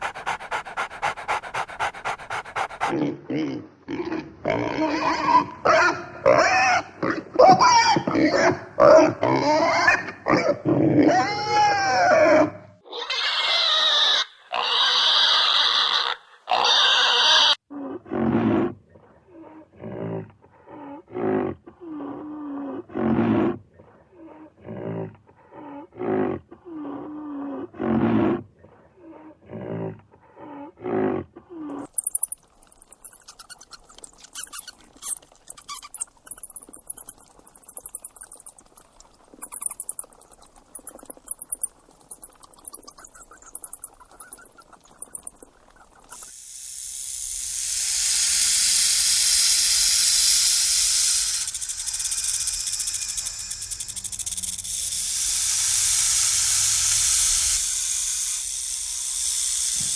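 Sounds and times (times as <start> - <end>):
animal calls: 0.0 - 3.0
fast high-pitched pulsing chirr: 46.1 - 59.9
long high calls: 47.6 - 58.9.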